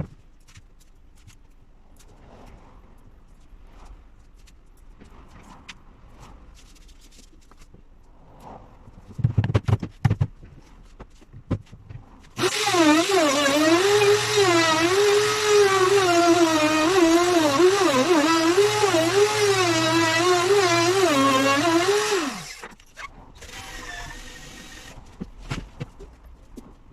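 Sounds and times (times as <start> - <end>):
power tool motor whining: 12.4 - 25.0.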